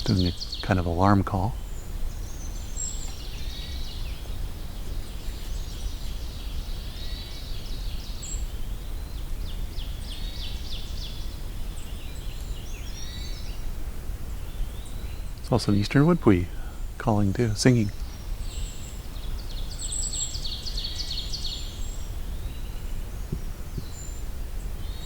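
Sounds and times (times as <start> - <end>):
distant nasal bird alarm call: 0.0 - 25.0
steady low rumble: 8.9 - 19.8.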